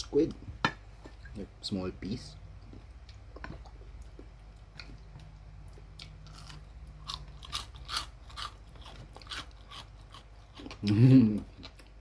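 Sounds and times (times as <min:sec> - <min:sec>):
faint low hum: 0:00.0 - 0:12.0
chewing crisp fried chicken: 0:02.6 - 0:12.0.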